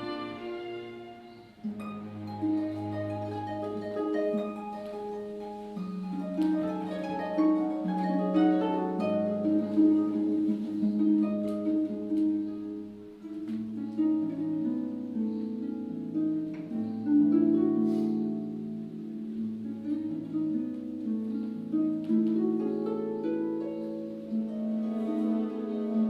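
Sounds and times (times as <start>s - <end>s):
plucked harp notes: 0.0s - 26.0s.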